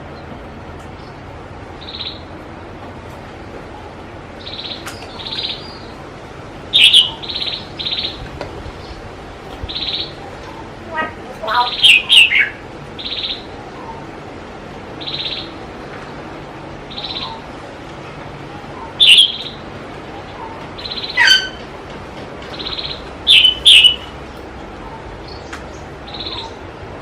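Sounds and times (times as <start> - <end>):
small birds chirping: 0.0 - 2.4, 3.6 - 17.8, 18.4 - 21.8, 22.4 - 26.8
sharp bird chirps: 22.6 - 24.2.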